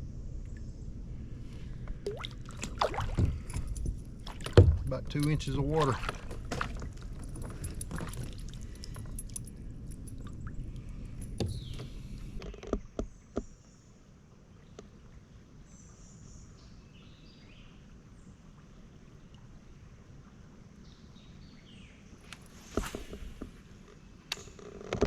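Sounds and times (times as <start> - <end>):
kayak handling rumble and clicks: 1.4 - 13.7, 22.2 - 25.0
sharp knocks on kayak: 4.4 - 4.9.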